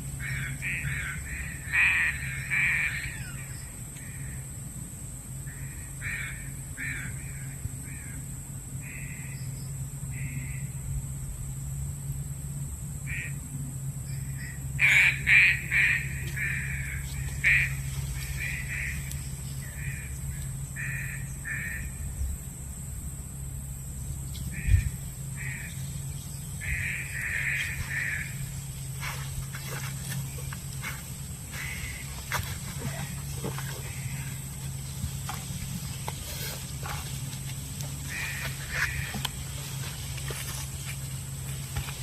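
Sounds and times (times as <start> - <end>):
pigeons calling: 0.0 - 4.6, 13.0 - 22.2, 23.9 - 42.0
low steady hum: 0.0 - 42.0.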